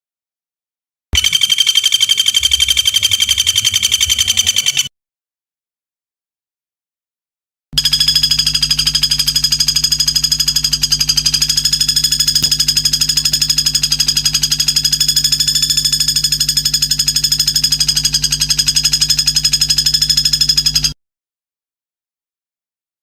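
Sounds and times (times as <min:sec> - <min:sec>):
rapid high-pitched bird trill: 0:01.2 - 0:04.9.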